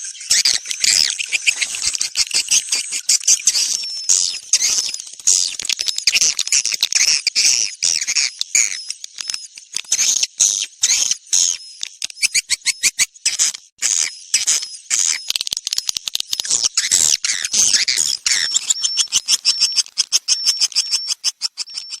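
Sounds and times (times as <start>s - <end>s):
swiftlet chirps and twitters: 0.0s - 22.0s
fast even clicking: 0.8s - 9.8s, 15.2s - 22.0s.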